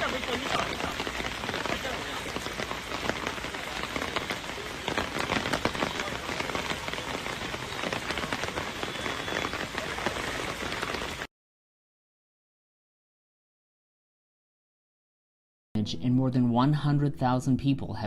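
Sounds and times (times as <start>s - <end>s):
heavy rain on hard surface: 0.0s - 11.3s.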